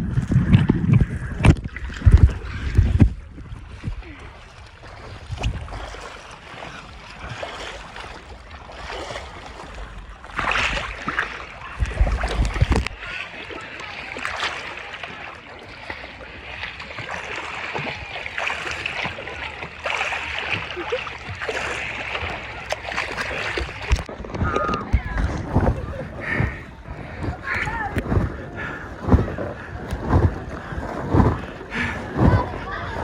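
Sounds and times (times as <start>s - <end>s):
wind rumbling on microphone: 0.0s - 13.2s, 22.2s - 33.0s
water sloshing and splashing: 0.0s - 33.0s.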